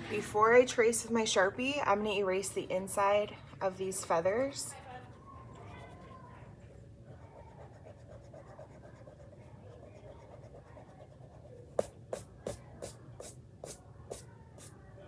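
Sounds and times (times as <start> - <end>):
eraser rubbing on paper: 7.2 - 14.8.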